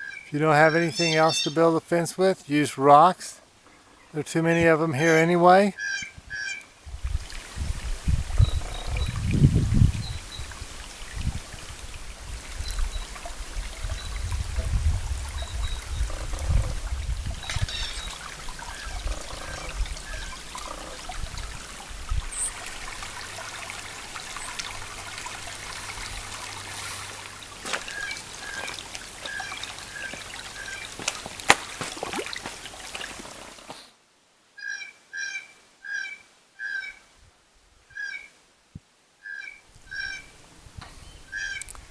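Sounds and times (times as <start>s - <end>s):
bird calling: 0.0s - 1.7s, 3.7s - 6.7s, 17.4s - 21.1s, 26.7s - 32.5s, 34.6s - 37.0s, 39.2s - 40.3s, 41.1s - 41.7s
water trickling: 6.6s - 33.7s.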